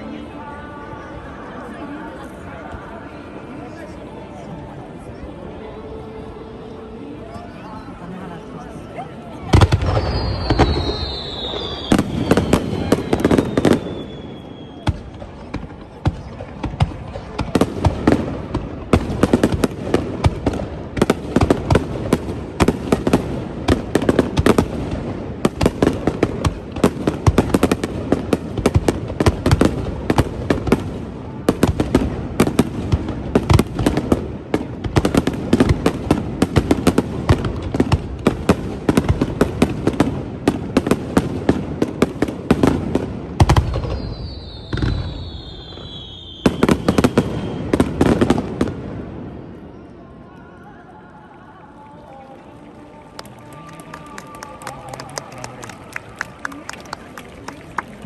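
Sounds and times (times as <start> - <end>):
fireworks bangs and crackles: 7.7 - 49.7
falling whistle: 10.0 - 12.4, 13.1 - 14.9, 43.9 - 47.7.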